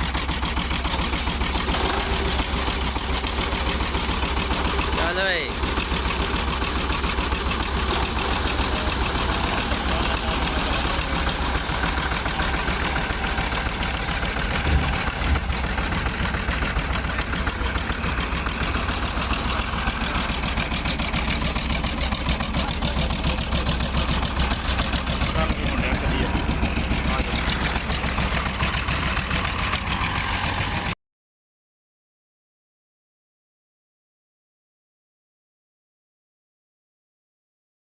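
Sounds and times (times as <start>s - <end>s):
engine running with fast throb: 0.0s - 31.0s
loud knocks: 14.4s - 16.4s.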